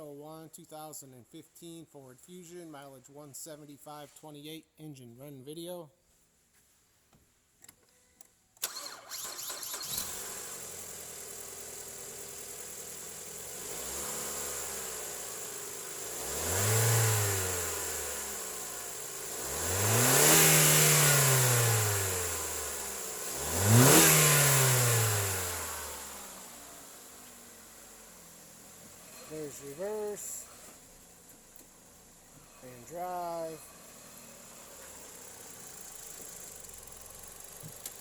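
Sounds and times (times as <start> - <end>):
car engine starting and revving: 8.6 - 38.0.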